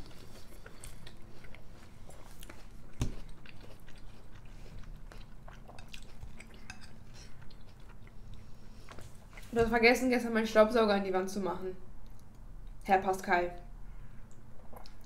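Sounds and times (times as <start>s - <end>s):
chewing: 0.0s - 9.5s, 14.3s - 15.0s.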